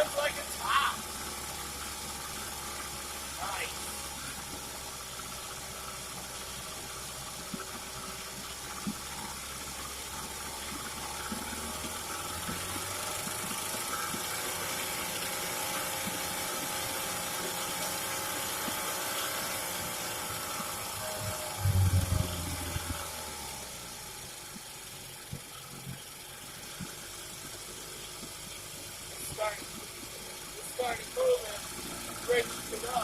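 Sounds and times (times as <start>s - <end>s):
outboard motor clattering: 0.0s - 33.0s.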